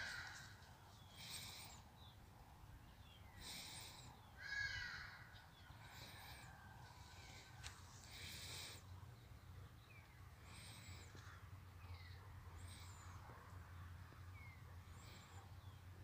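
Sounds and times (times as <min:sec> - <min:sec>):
harsh bird calls: 0:00.0 - 0:02.3, 0:02.9 - 0:13.3.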